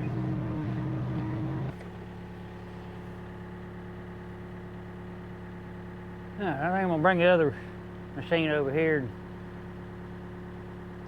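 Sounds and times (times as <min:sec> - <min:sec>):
excavator diesel engine running: 0:00.0 - 0:08.2.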